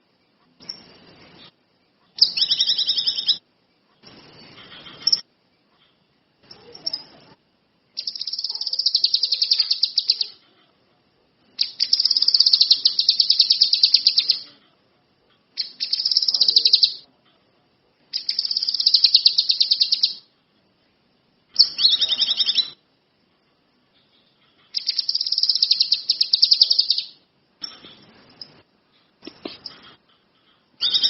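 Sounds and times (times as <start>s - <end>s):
lovebird chattering trills: 2.2s - 3.4s, 7.9s - 10.5s, 11.5s - 14.5s, 15.6s - 17.0s, 18.1s - 20.3s, 21.6s - 22.8s, 24.7s - 28.6s, 30.8s - 31.0s.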